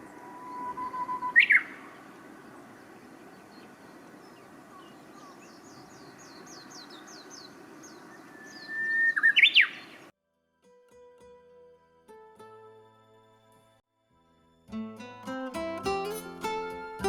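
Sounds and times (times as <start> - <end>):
loud bird whistle song: 0.0 - 2.2, 4.8 - 10.0
high downward-sliding bird notes: 14.8 - 17.0.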